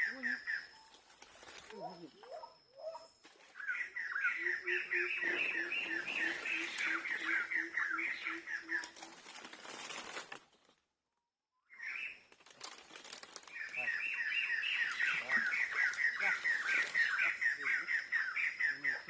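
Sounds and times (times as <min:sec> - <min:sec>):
bird chirping: 0:00.0 - 0:09.4, 0:13.4 - 0:19.0.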